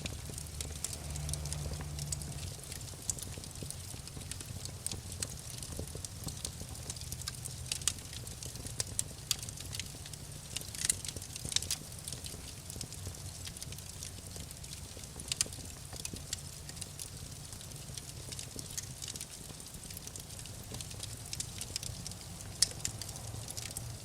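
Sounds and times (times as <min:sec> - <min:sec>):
low steady rumble: 0:00.0 - 0:10.8
wood fire crackling: 0:00.0 - 0:24.0.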